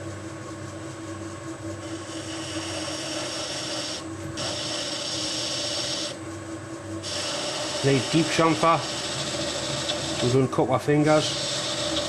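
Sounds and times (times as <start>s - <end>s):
lathe humming: 0.0s - 12.0s
tool scraping metal: 1.9s - 6.2s, 7.0s - 12.0s.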